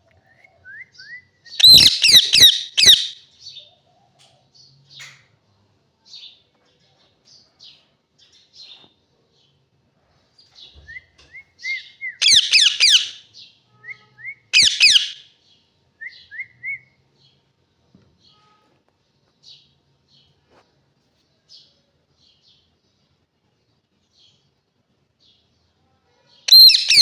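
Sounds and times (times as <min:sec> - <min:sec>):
parrot chirps and whistles: 0:01.0 - 0:03.2, 0:11.6 - 0:13.2, 0:13.9 - 0:15.2, 0:26.5 - 0:27.0
parrot harsh screeching: 0:01.6 - 0:03.2, 0:12.2 - 0:13.2, 0:14.6 - 0:15.2, 0:26.5 - 0:27.0.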